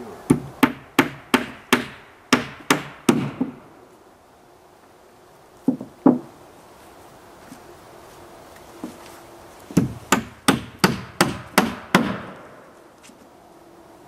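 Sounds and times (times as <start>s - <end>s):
hammer striking wood: 0.3s - 3.6s, 5.7s - 6.3s, 9.8s - 12.4s.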